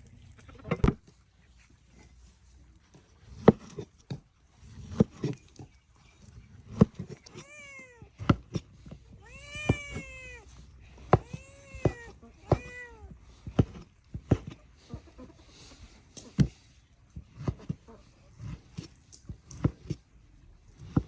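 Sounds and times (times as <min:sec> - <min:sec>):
cat meowing: 0:07.3 - 0:08.2, 0:09.1 - 0:13.2.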